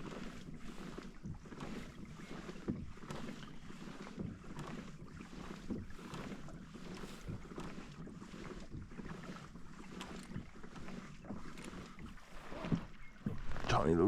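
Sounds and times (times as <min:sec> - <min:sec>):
paddle strokes in water: 0:00.0 - 0:14.0.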